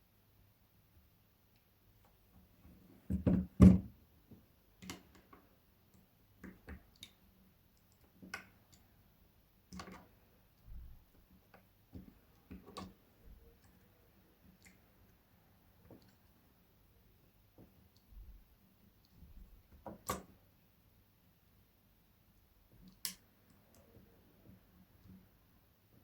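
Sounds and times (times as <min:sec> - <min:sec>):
clicks and taps of small parts: 0:04.8 - 0:07.2, 0:09.7 - 0:10.8, 0:19.0 - 0:20.3.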